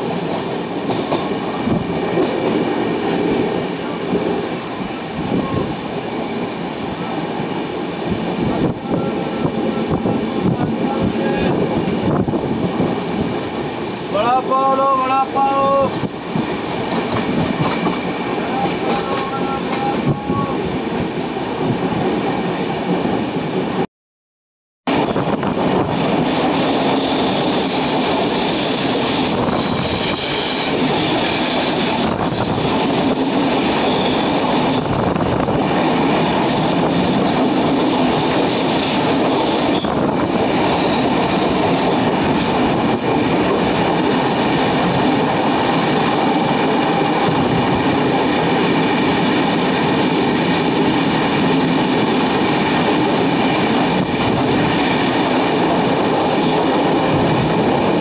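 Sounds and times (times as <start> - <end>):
train rumbling on rails: 0.0 - 23.9, 24.8 - 58.0
high wheel squeal: 26.4 - 34.8.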